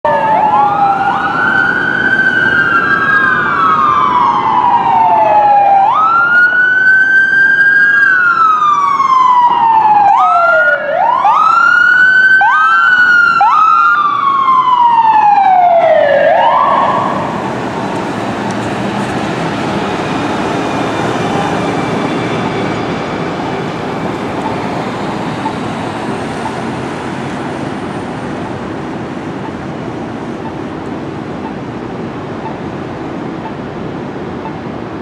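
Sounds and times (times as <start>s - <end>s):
emergency sirens wailing: 0.0s - 35.0s
roar of passing vehicles: 16.6s - 30.3s.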